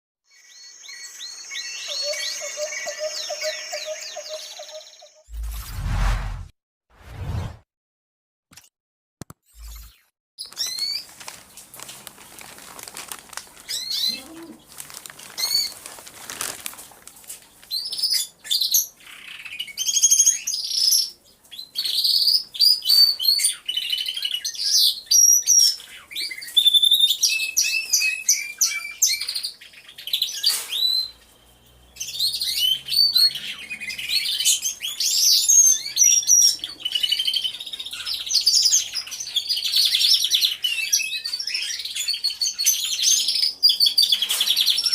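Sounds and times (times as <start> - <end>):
canaries singing: 0.3 - 5.2, 13.6 - 15.8, 17.5 - 44.9.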